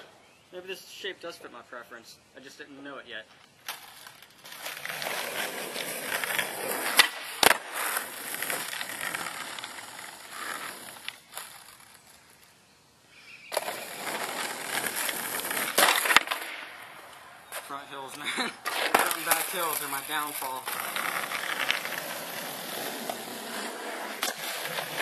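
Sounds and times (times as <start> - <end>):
skateboard wheels rolling: 3.5 - 12.6, 13.5 - 25.0
skateboard clacking: 3.7 - 11.9, 13.5 - 25.0.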